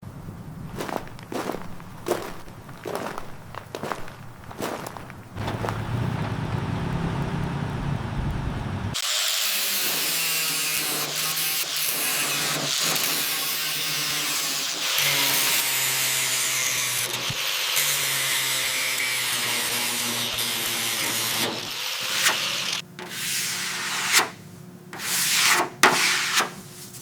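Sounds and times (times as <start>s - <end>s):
power tool humming and hissing: 9.0s - 24.2s.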